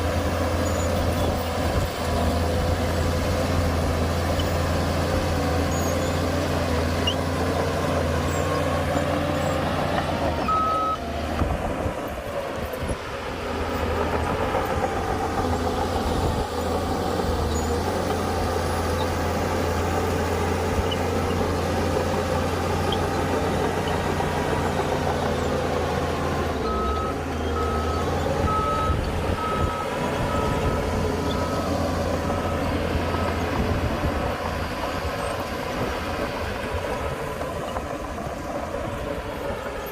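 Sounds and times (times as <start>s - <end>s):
heavy machinery engine drone: 0.0s - 39.9s
reversing alarm beeping: 10.4s - 11.0s, 26.6s - 33.4s.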